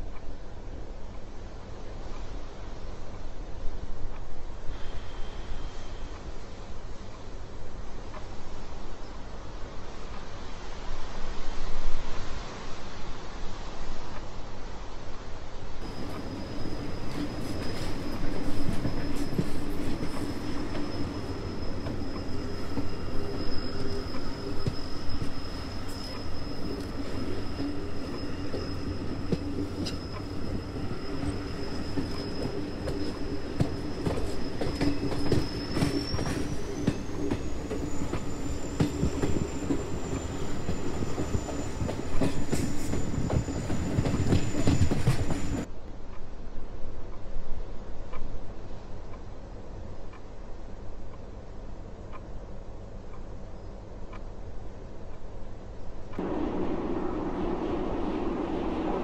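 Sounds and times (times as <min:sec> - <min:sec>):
high whine: 0:15.8 - 0:45.6, 0:56.2 - 0:59.0
thin high squeal: 0:15.8 - 0:45.6
train wheels rumbling on track: 0:15.8 - 0:45.8, 0:54.3 - 0:59.0.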